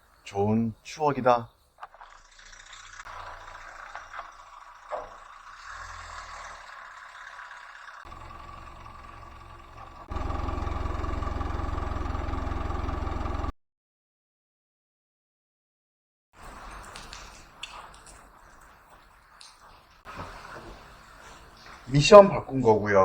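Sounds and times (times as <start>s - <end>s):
vehicle engine running: 2.8s - 13.5s
dense low rumble: 8.1s - 13.5s.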